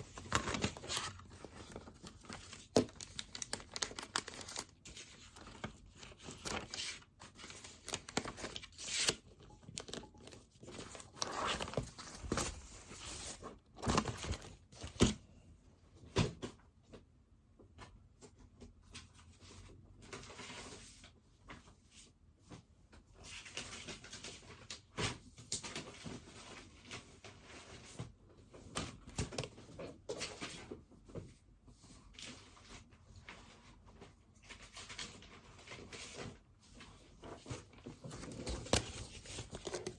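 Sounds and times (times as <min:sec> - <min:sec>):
paper rustling: 0:00.0 - 0:15.1, 0:32.0 - 0:39.9.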